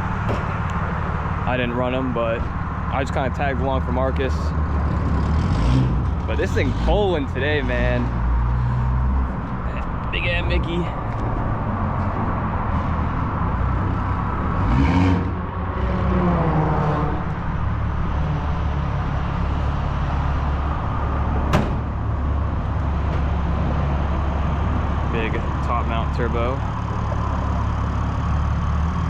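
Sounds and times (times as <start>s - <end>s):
car engine idling: 17.2s - 29.0s.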